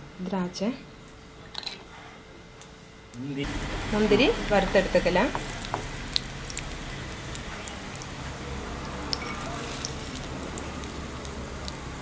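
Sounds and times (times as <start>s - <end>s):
nuts sizzling in hot oil: 3.4s - 12.0s.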